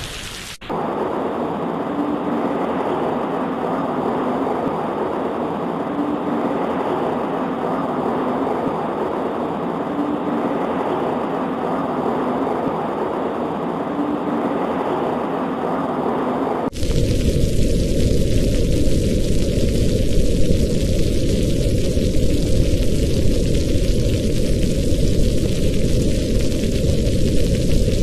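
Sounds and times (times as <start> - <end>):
rain on a window: 0.0 - 0.9, 16.7 - 28.0.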